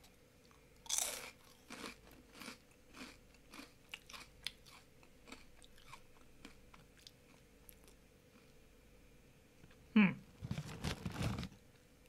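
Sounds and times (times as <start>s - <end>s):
person crunching snack chips: 0.8s - 7.1s.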